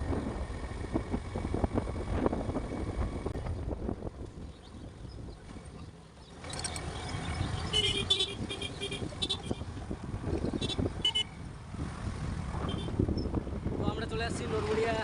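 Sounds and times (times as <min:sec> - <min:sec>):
motorbike road noise: 0:00.0 - 0:15.0
vehicle horn honking: 0:07.7 - 0:09.6, 0:10.6 - 0:11.3, 0:12.6 - 0:12.9.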